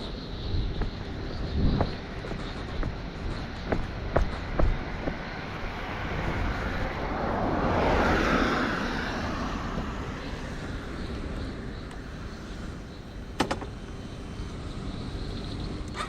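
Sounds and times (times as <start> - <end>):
vehicle passing by: 3.6 - 12.8.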